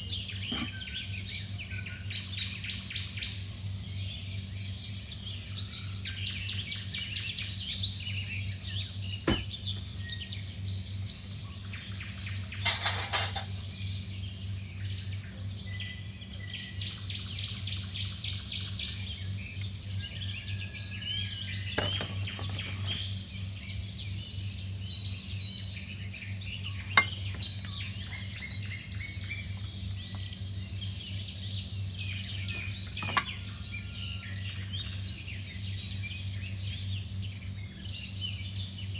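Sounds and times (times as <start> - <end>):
small birds chirping: 0.0 - 38.9
kitchenware clinking: 0.5 - 0.8, 12.6 - 13.6, 21.8 - 22.5, 27.0 - 27.5, 32.9 - 33.5.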